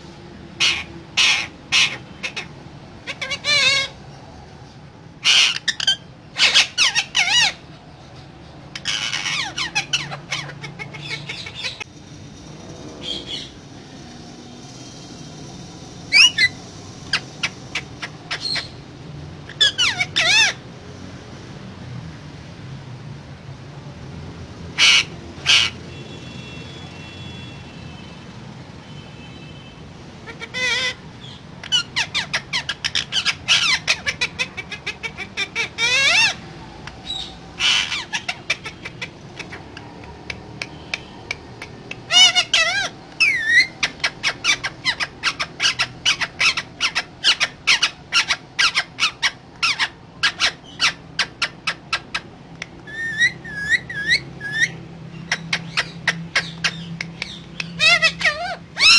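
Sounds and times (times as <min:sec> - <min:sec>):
parakeet squawking: 0:00.6 - 0:04.0, 0:05.2 - 0:07.8, 0:08.7 - 0:11.9, 0:13.0 - 0:13.6, 0:16.1 - 0:18.8, 0:19.4 - 0:20.6, 0:24.8 - 0:25.8, 0:30.2 - 0:58.9.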